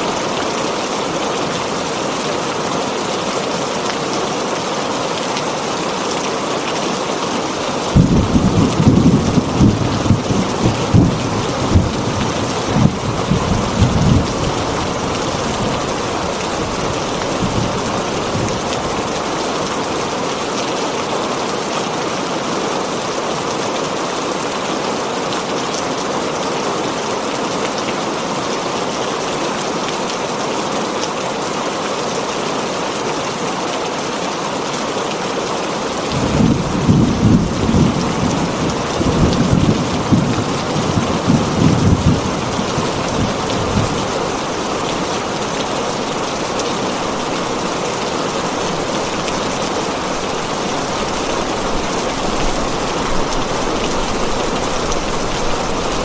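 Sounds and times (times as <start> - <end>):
heavy rain on a tin roof: 0.0 - 56.0
thunder rumbling: 8.0 - 19.1, 48.4 - 56.0.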